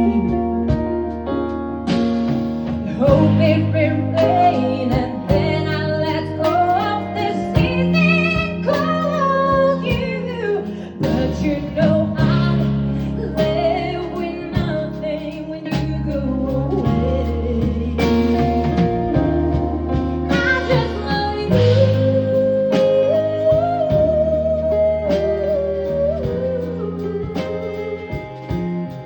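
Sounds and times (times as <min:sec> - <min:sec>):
woman singing: 0:00.0 - 0:01.0, 0:02.9 - 0:29.0
live band playing: 0:00.0 - 0:29.0.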